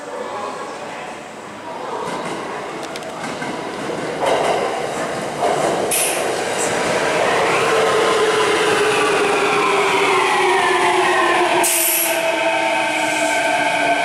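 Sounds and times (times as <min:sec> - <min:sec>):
train wheels rumbling and knocking: 0:02.0 - 0:14.0.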